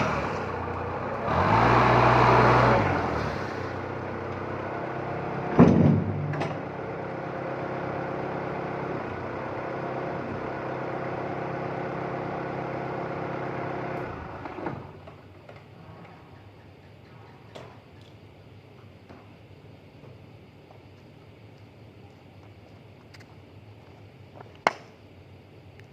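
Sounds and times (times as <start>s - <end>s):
forklift engine idling: 0.0s - 15.8s
loud clunk: 5.5s - 6.7s.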